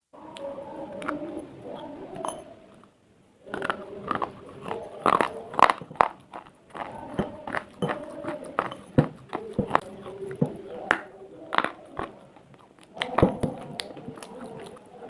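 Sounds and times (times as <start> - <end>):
slate crunching: 3.4 - 15.0.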